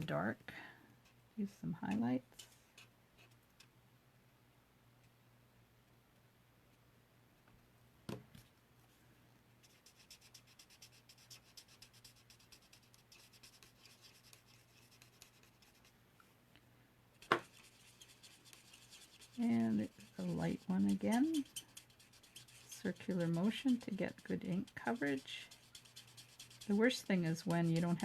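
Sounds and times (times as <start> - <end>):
marker scratching on cardstock: 9.6 - 15.9, 17.2 - 28.0.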